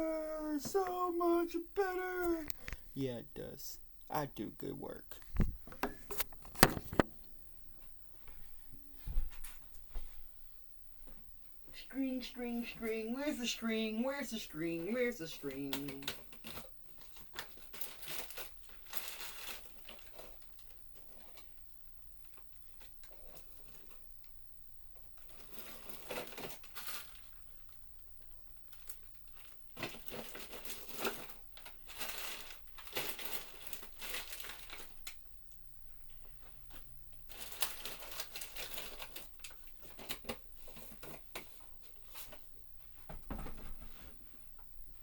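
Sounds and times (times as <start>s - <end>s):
rustling and crinkling by hand: 0.0s - 3.5s, 5.0s - 45.0s.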